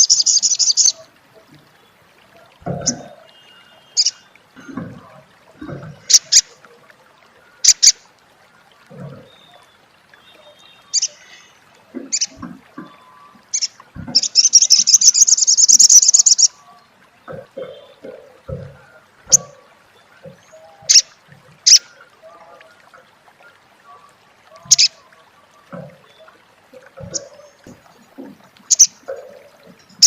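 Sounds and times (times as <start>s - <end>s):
bird chattering trill: 13.6s - 16.5s, 24.7s - 24.9s, 28.7s - 29.0s.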